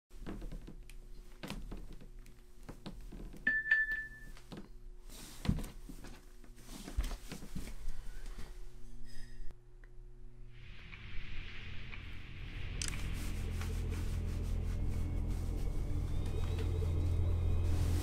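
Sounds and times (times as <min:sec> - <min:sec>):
low steady hum: 0:00.1 - 0:18.0
thumps and rustles on floor: 0:05.4 - 0:06.2.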